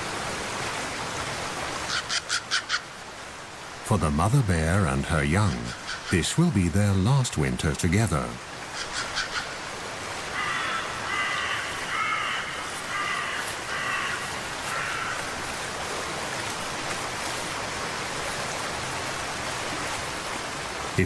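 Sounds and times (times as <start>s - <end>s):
bird calling: 5.4s - 6.3s, 8.7s - 9.6s, 10.3s - 15.4s.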